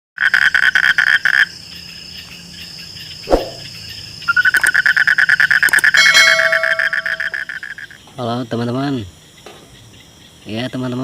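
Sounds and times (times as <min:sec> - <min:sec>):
high-pitched insect buzz: 0:03.0 - 0:08.0
short falling sound: 0:03.3 - 0:03.7
frog trilling: 0:04.3 - 0:08.0.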